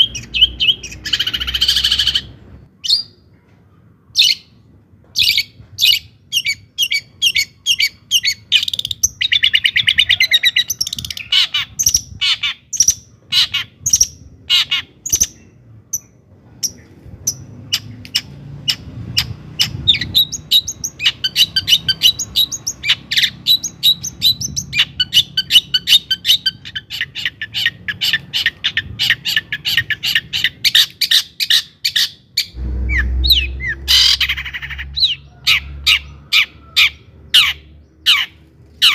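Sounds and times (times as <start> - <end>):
shrike singing: 32.5 - 36.5
low rumble: 32.5 - 38.0.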